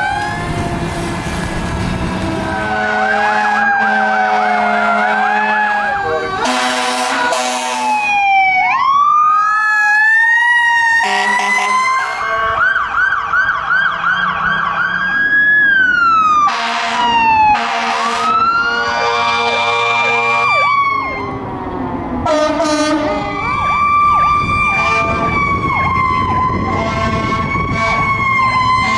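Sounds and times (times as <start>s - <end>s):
emergency sirens wailing: 0.0s - 28.9s
air horn blasts: 2.3s - 8.1s, 11.0s - 12.6s, 16.4s - 20.7s, 22.2s - 23.3s, 24.8s - 25.3s, 26.7s - 28.2s.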